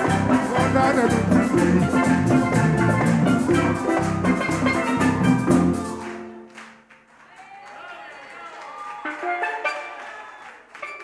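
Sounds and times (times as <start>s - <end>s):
bass line: 0.0s - 6.3s
steady drum beat: 0.0s - 6.3s
live band playing: 0.0s - 6.8s, 9.1s - 10.1s.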